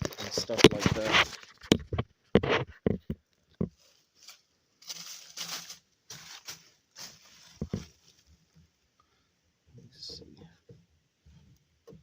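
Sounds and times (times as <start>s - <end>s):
rustling and crunching: 0.0s - 8.9s.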